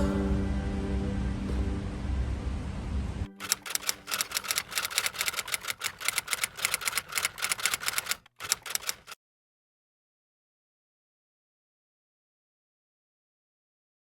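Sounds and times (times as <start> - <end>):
rapid typing clicks: 3.4 - 9.2.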